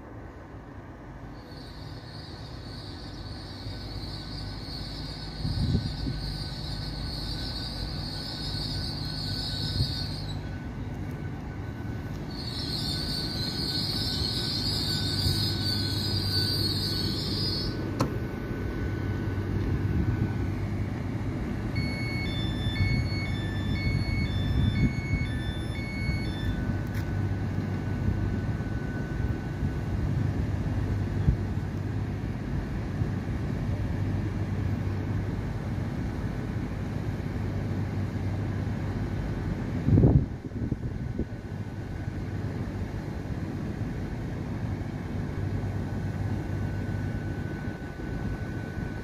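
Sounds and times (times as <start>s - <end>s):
train low hum: 0.0s - 49.0s
train brake squeal: 1.2s - 18.0s, 21.7s - 29.7s
door warning beeps: 1.8s - 18.2s, 18.8s - 29.5s.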